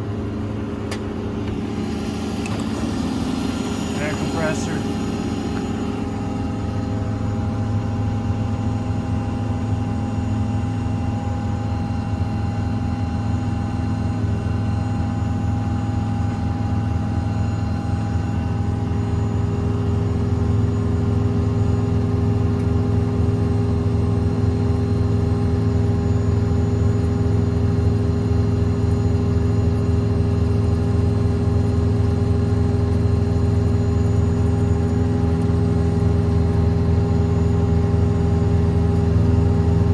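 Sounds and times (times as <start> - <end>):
diesel engine running: 0.0 - 9.6, 15.0 - 39.9
air compressor hum: 0.8 - 6.8.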